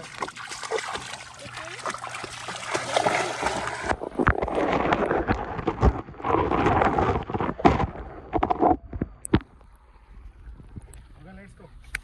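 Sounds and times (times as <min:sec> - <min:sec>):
dog splashing through water: 0:00.0 - 0:04.8.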